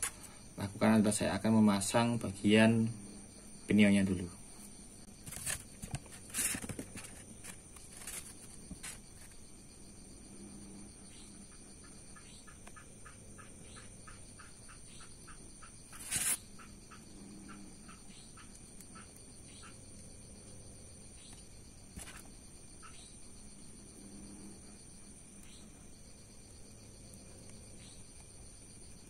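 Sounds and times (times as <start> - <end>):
bird chirping: 11.0 - 19.8.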